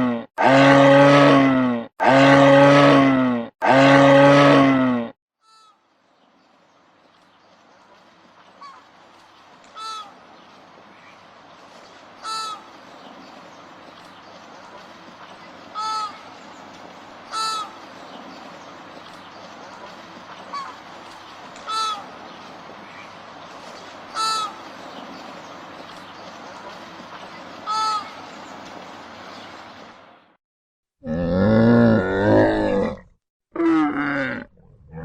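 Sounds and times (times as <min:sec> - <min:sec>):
background hiss: 0:05.8 - 0:30.2
goose honking: 0:09.8 - 0:10.2, 0:12.2 - 0:12.7, 0:15.7 - 0:16.4, 0:17.3 - 0:17.9, 0:20.4 - 0:20.8, 0:21.6 - 0:22.2, 0:24.1 - 0:24.7, 0:27.6 - 0:28.3.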